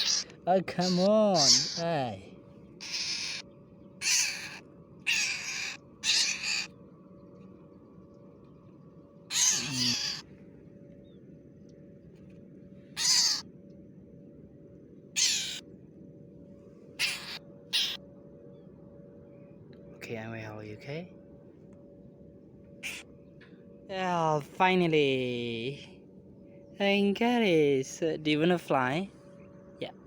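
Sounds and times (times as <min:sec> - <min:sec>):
bird squawking shrilly: 0:00.0 - 0:02.1, 0:02.8 - 0:06.8, 0:09.3 - 0:10.3, 0:13.0 - 0:13.5, 0:15.2 - 0:15.6, 0:17.0 - 0:18.0, 0:22.8 - 0:23.1.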